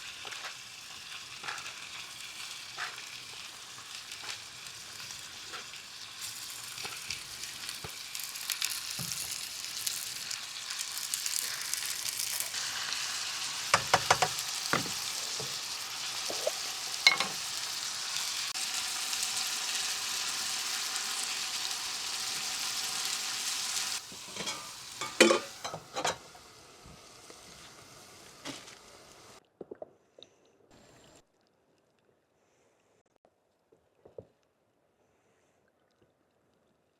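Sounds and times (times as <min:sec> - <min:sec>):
food sizzling in a pan: 0:00.0 - 0:29.4
utensil clicking and knocking: 0:13.8 - 0:14.9.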